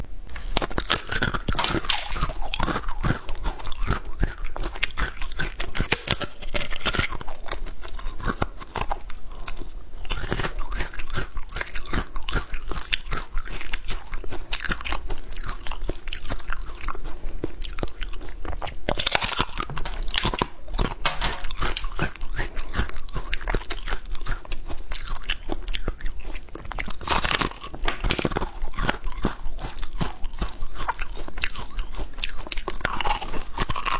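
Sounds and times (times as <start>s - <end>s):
person chewing crunchy snack: 0.2s - 33.9s.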